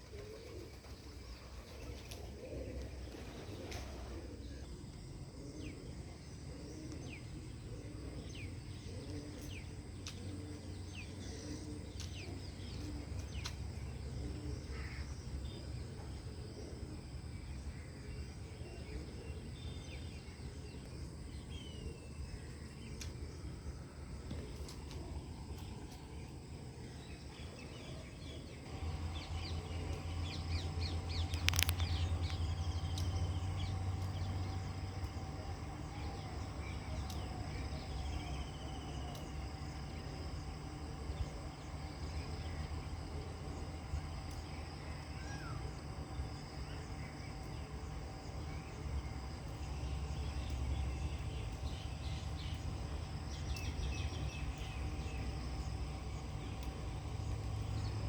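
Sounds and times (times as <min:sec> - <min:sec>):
birds calling and chirping: 0:00.0 - 0:58.0
faint steady tone: 0:00.0 - 0:58.0
high insect-like whine: 0:00.0 - 0:58.0
low hum: 0:00.0 - 0:58.0.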